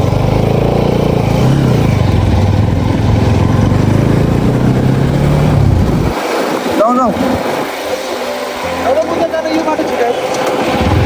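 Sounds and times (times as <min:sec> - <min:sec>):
motorcycle engine running: 0:00.0 - 0:06.2.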